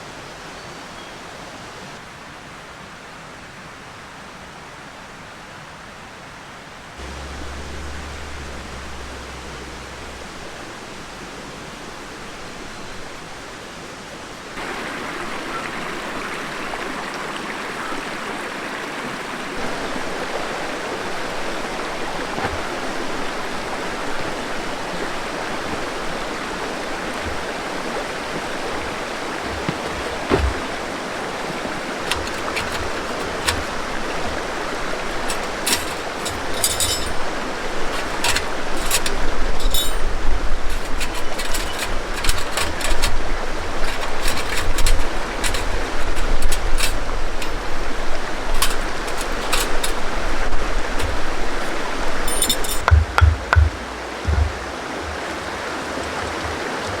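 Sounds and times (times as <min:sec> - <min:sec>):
river water rushing: 0:00.0 - 0:57.0
sharp clicks and knocks: 0:07.0 - 0:10.4, 0:29.4 - 0:30.8, 0:31.9 - 0:54.7
low thumps: 0:07.0 - 0:11.2, 0:28.8 - 0:31.0, 0:50.8 - 0:55.4.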